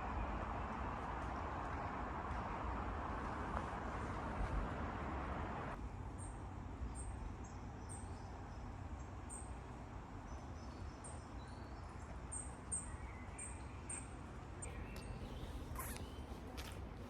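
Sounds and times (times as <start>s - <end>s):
small birds chirping: 10.3s - 17.0s.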